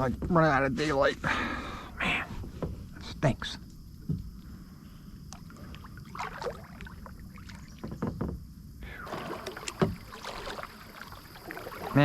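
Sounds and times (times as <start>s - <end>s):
paddle strokes splashing: 5.3s - 7.9s, 9.0s - 12.0s.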